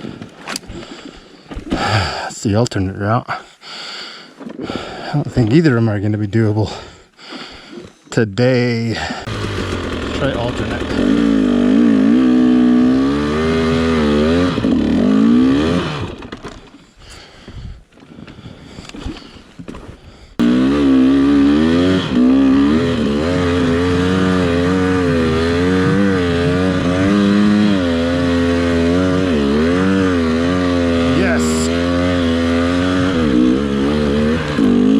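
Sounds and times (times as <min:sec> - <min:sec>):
dirt bike engine revving: 0:09.2 - 0:16.5, 0:20.4 - 0:34.9.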